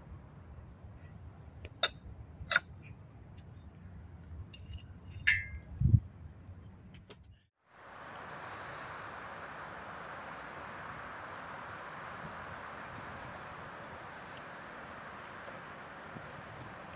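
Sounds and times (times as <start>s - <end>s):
cookware clinking: 4.6s - 5.6s.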